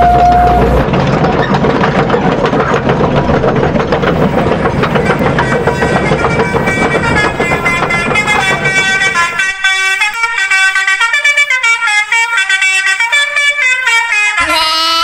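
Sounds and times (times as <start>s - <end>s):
musical truck horn playing a tune: 0.0s - 0.7s, 5.0s - 15.0s
deep horn blast: 0.0s - 0.9s, 3.3s - 15.0s.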